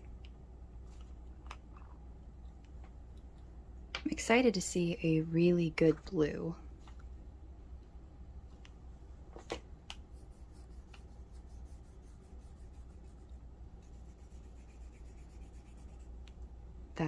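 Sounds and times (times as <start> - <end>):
rubbing on paper: 10.1 - 16.2.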